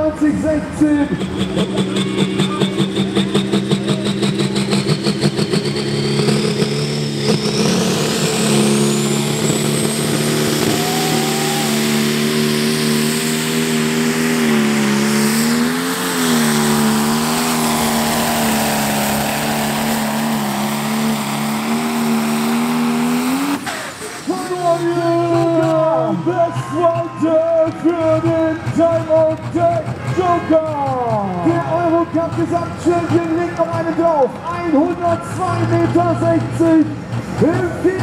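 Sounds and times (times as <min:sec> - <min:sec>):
tractor diesel engine under load: 0:00.0 - 0:38.0
turbo whistle: 0:05.1 - 0:12.6.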